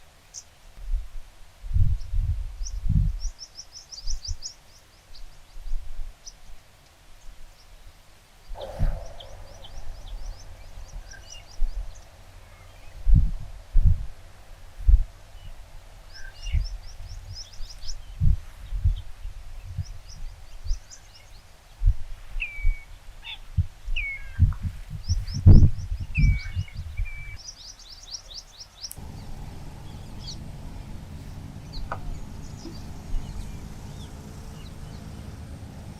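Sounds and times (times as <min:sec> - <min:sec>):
birds calling: 0:08.4 - 0:35.9.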